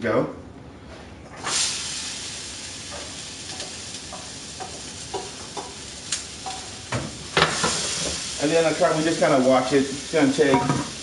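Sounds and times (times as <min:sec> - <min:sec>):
potatoes sizzling in hot oil: 0:01.4 - 0:11.0
utensil knocking while stirring: 0:02.9 - 0:05.8.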